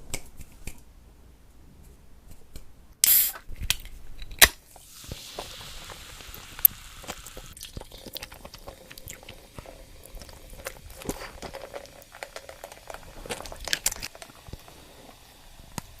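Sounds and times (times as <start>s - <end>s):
chewing crunchy food: 5.4s - 15.2s.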